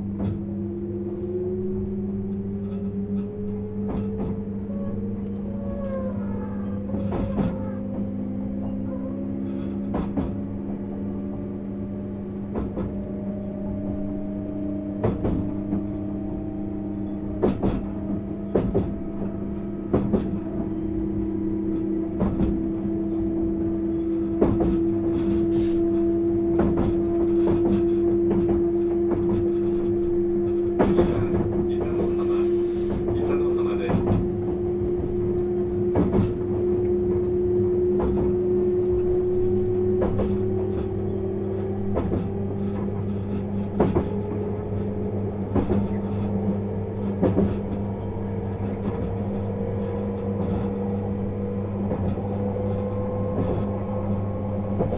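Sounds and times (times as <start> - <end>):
train traction motor whine: 0.0 - 54.9
train wheels knocking over rail joints: 26.5 - 37.2.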